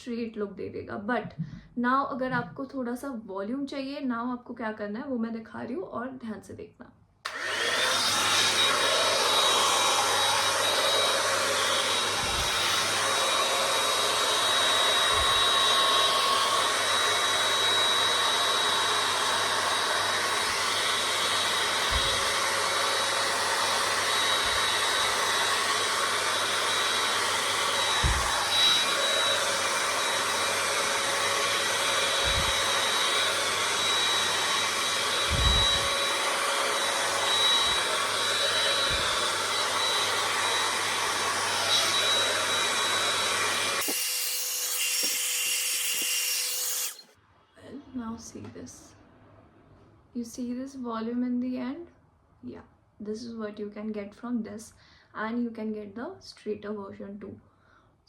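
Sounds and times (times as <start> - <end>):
hot air brush dryer blowing: 7.3 - 47.1.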